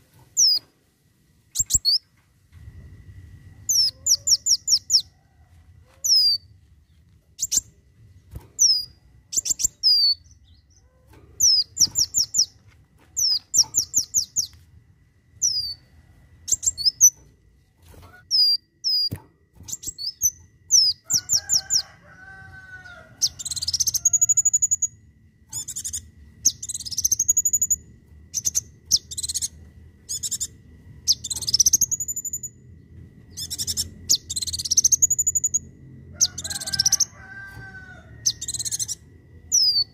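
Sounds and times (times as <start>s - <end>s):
sunbird singing sharp chirps: 1.5s - 2.0s, 25.6s - 32.6s, 33.3s - 35.7s.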